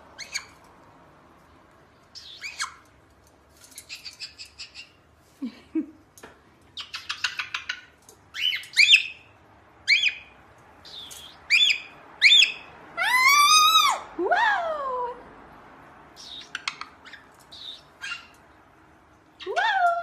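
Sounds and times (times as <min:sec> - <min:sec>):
bird chirps: 0:00.2 - 0:00.6, 0:02.1 - 0:02.9, 0:06.8 - 0:12.7, 0:16.2 - 0:18.4.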